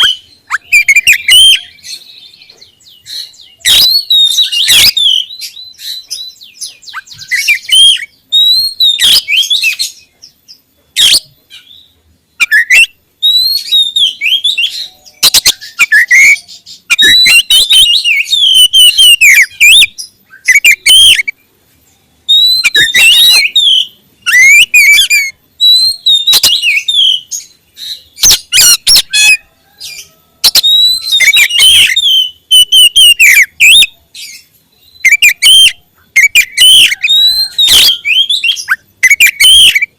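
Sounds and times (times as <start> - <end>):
bird singing whistles and clicks: 0.0 - 9.9, 30.4 - 33.9.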